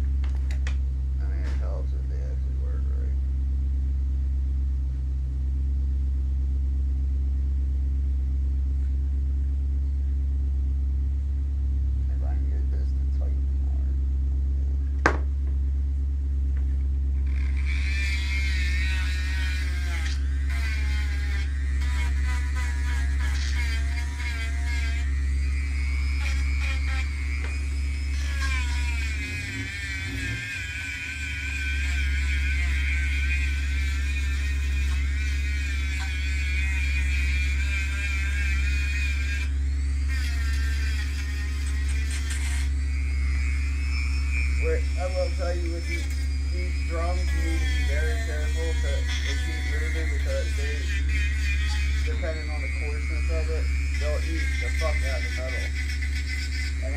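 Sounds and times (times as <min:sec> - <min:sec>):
steady low hum: 0:00.0 - 0:56.9
sanding drum grinding metal: 0:17.2 - 0:56.9.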